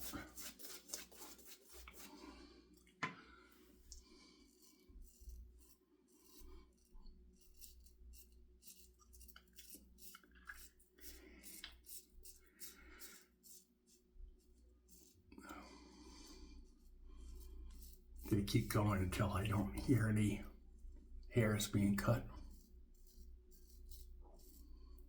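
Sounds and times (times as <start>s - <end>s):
razor blade scraping stubble: 0.0s - 2.1s, 4.5s - 13.7s, 21.5s - 25.0s.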